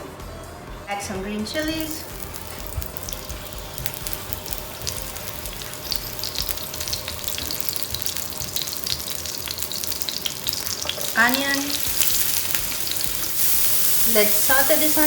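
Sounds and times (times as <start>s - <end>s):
chilies sizzling in hot oil: 1.5s - 15.0s
spitting oil pops: 1.6s - 15.0s.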